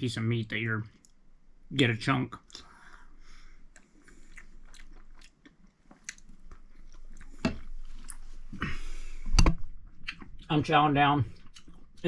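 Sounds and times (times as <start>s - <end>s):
person chewing food: 2.5s - 8.8s, 9.8s - 10.5s, 11.3s - 12.0s.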